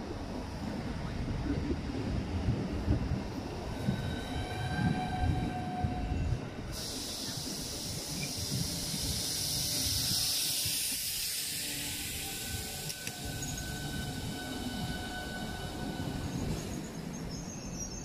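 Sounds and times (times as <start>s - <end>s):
train wheel rumble: 0.0s - 18.0s
loud steady hiss: 6.7s - 14.6s
whining tones: 8.2s - 16.9s.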